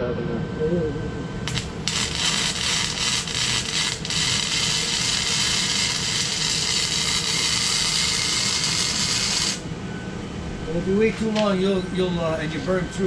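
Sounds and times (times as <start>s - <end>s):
welding arc crackling: 1.4s - 9.7s.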